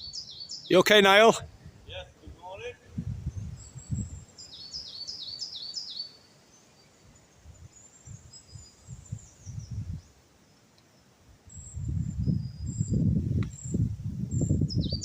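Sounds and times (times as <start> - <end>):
faint high bird calls: 0.0 - 1.3, 3.6 - 10.2
songbird singing: 0.0 - 15.0.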